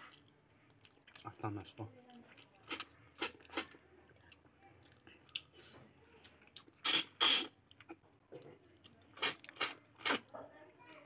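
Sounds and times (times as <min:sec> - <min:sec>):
person chewing: 0:00.0 - 0:10.3
wet mouth smacks: 0:09.2 - 0:10.2.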